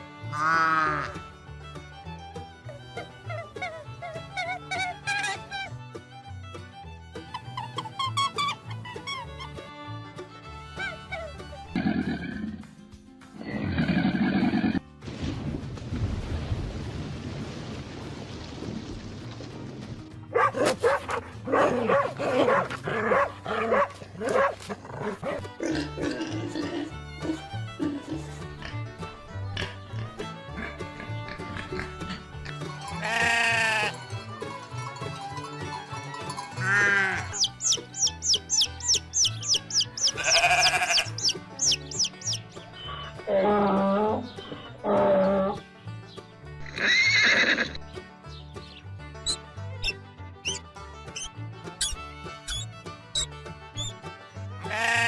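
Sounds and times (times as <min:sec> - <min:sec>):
bleat: 0:00.3 - 0:01.2, 0:32.9 - 0:34.0, 0:36.6 - 0:37.5, 0:39.5 - 0:42.4, 0:54.6 - 0:55.0
animal barking yelps: 0:20.3 - 0:25.7, 0:37.2 - 0:42.4, 0:49.3 - 0:53.9
quick high falling chirps: 0:49.3 - 0:50.6.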